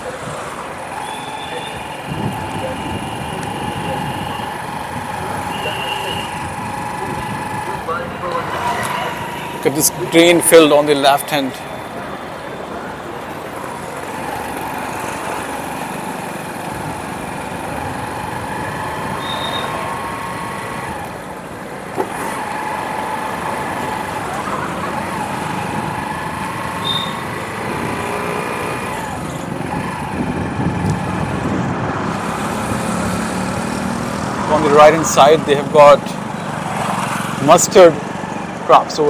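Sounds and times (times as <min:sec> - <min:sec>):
wind and road noise: 0:00.0 - 0:39.0
motorbike engine running: 0:00.9 - 0:08.1.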